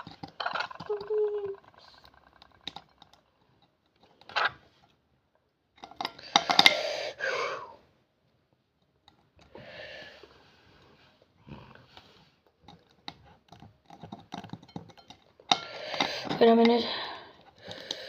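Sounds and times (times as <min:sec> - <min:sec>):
clicking and scraping: 0:00.0 - 0:05.0, 0:10.2 - 0:18.0.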